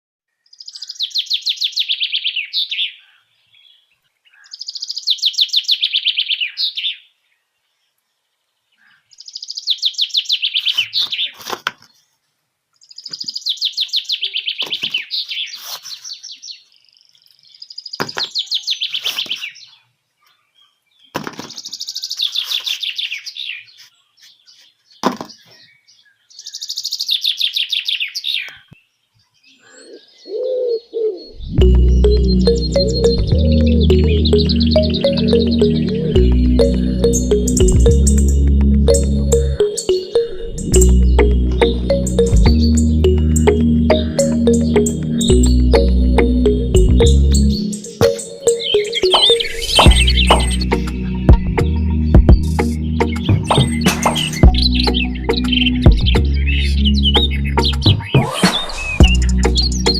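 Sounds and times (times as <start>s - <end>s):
bird trilling: 29.9s - 59.9s.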